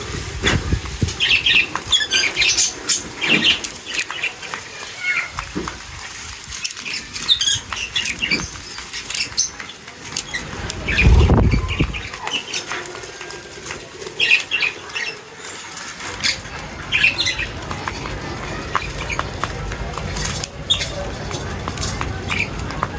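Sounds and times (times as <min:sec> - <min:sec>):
birds chirping: 0:00.0 - 0:05.5, 0:06.5 - 0:21.2
wing flutters: 0:06.3 - 0:16.5
low whoosh of wingbeats: 0:10.3 - 0:12.2.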